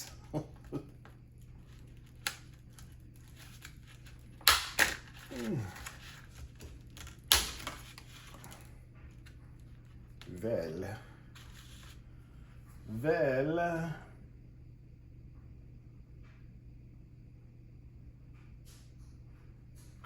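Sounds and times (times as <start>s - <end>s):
plastic packaging tearing: 1.6s - 9.4s.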